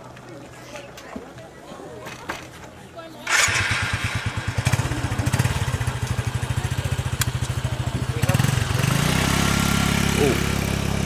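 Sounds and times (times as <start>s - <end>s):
motorbike engine idling: 3.2s - 11.0s.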